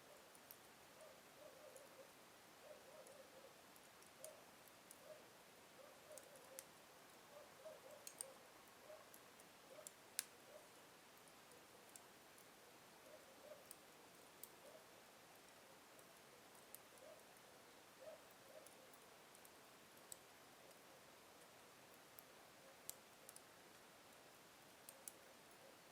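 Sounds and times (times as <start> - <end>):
wood fire crackling: 0.1 - 25.9
fire popping: 8.0 - 8.3.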